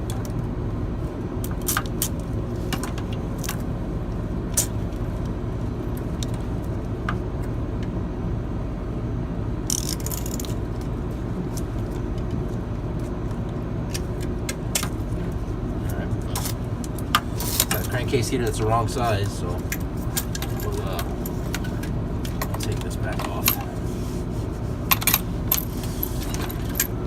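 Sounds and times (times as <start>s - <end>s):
low machinery hum: 0.0s - 27.0s
rustling scrape: 23.7s - 26.8s.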